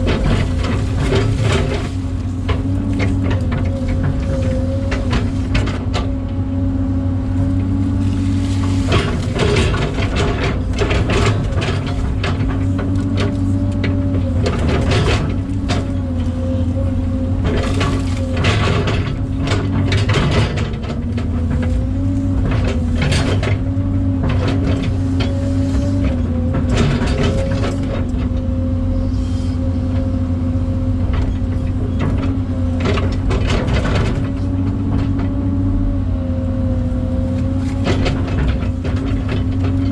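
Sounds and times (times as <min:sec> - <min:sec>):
metal clanks and rattles: 0:00.0 - 0:06.3, 0:07.5 - 0:28.5, 0:31.0 - 0:35.3, 0:37.3 - 0:39.9
excavator engine and hydraulics whine: 0:00.0 - 0:39.9.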